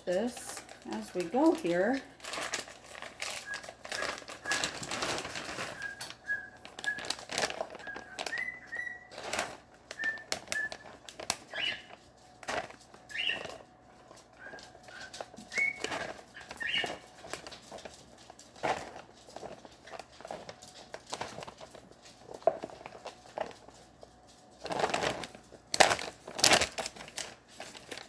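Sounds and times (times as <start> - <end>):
plastic bags rustling: 0.0 - 28.0
parrot whistling: 3.3 - 9.2, 9.9 - 10.9, 11.5 - 11.9, 13.1 - 13.4, 14.4 - 17.0.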